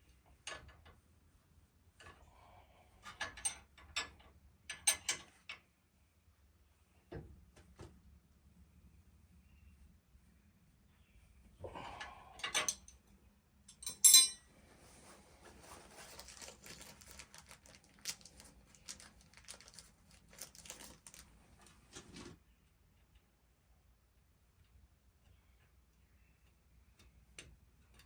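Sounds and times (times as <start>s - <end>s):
small irregular clicks and rattles: 0.1s - 1.1s, 2.9s - 5.7s, 16.0s - 28.0s
metal tools clinking: 13.7s - 14.5s.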